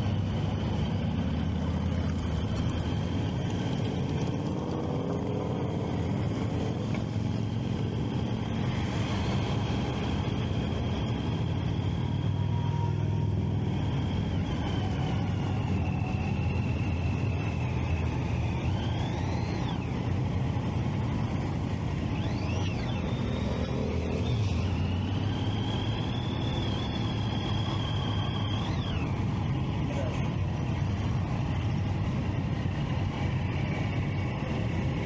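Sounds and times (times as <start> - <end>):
motorcycle engine and wind rumble: 0.0 - 35.0
thin wavering high tone: 22.0 - 30.7.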